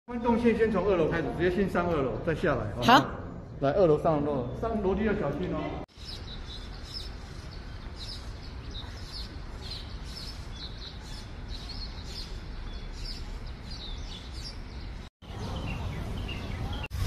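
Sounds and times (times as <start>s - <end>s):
low outdoor background noise: 0.1s - 17.0s
small birds chirping: 3.4s - 17.0s.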